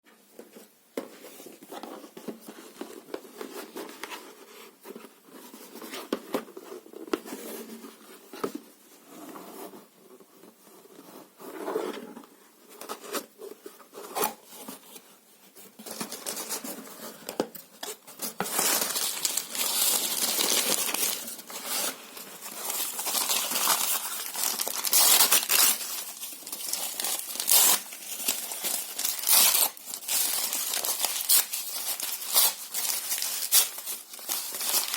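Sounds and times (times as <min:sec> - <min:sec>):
paper crumpling and tearing: 0:18.2 - 0:34.9.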